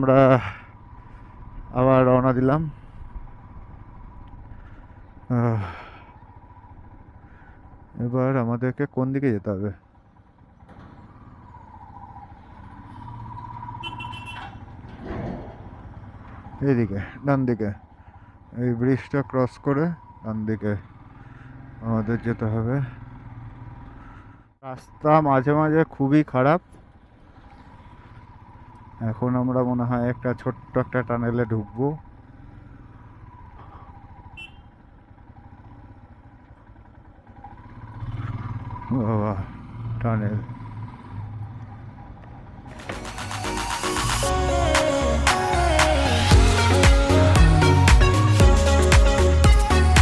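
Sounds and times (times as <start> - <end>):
motorcycle engine: 0.0 - 50.0
road noise: 0.0 - 50.0.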